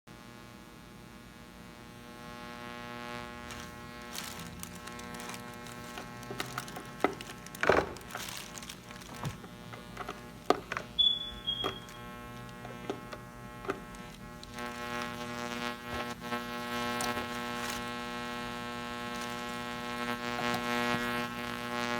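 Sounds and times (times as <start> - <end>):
electrical hum: 0.2 - 21.9
knocks and clicks: 5.8 - 14.6
brief high tone: 11.0 - 12.0.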